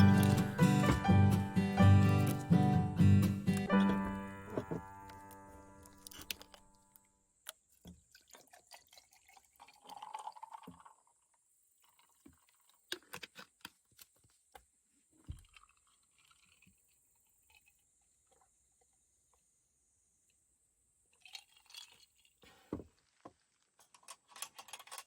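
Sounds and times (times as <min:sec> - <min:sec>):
background music: 0:00.0 - 0:06.9
liquid being poured: 0:07.9 - 0:11.2, 0:21.1 - 0:22.3.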